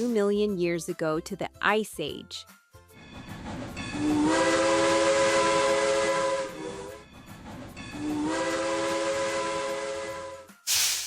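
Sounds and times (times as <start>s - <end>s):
steam locomotive whistle: 3.9s - 7.1s, 7.9s - 10.6s
steam hissing: 10.7s - 11.0s.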